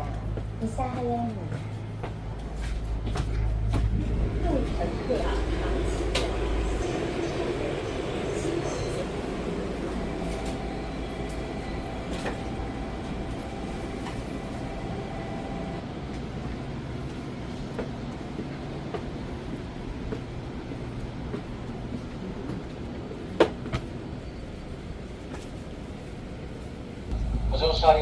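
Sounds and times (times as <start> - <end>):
low hum inside train car: 0.0 - 28.0
faint steady tones: 4.2 - 15.8.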